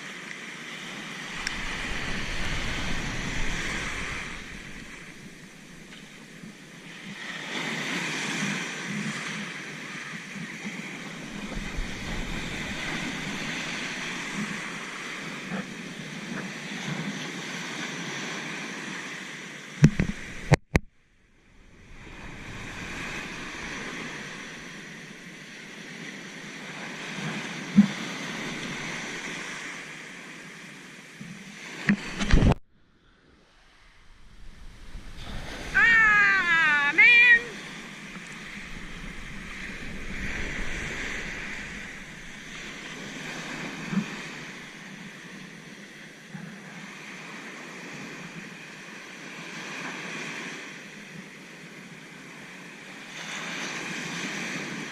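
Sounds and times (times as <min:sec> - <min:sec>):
ocean surf breaking: 0:00.0 - 0:54.9
wind buffeting microphone: 0:01.1 - 0:06.9, 0:10.8 - 0:15.6, 0:19.8 - 0:25.8, 0:33.4 - 0:36.8, 0:37.5 - 0:45.5.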